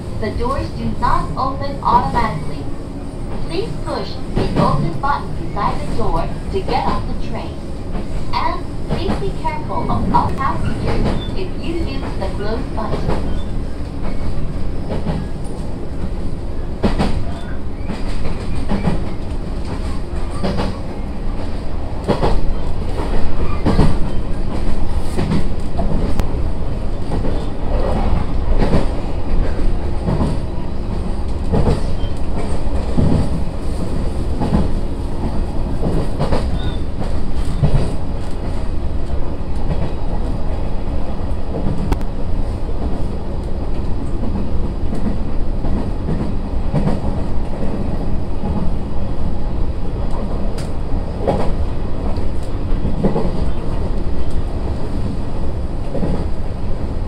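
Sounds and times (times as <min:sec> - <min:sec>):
train rumbling inside carriage: 0:00.0 - 0:57.0.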